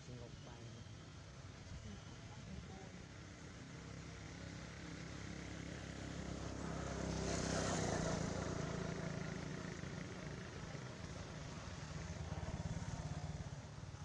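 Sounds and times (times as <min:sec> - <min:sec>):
vehicle engine passing by: 0:05.2 - 0:13.8.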